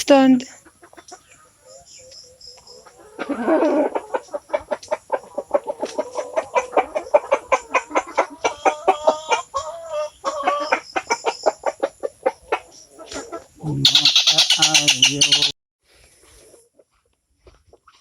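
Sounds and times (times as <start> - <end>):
rustle: 0.5 - 10.8, 15.8 - 18.0
bird calling harsh notes: 13.7 - 15.6.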